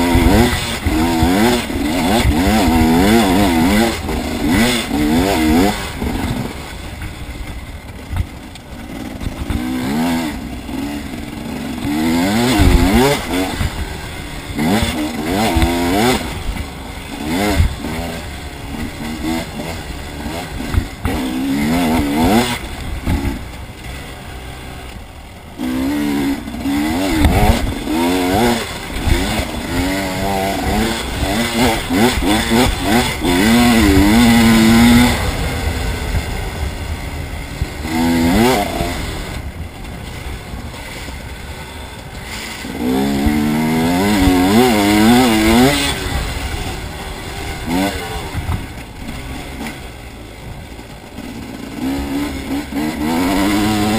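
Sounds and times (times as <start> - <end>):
motorbike engine revving: 0.0 - 53.9.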